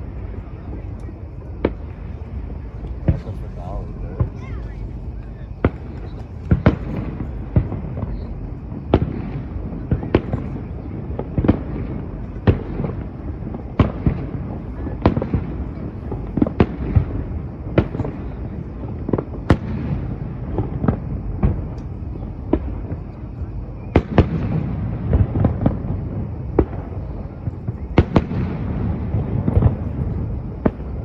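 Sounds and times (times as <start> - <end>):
low rumble: 0.0 - 23.8
fireworks bursting with sharp bangs: 0.0 - 31.0.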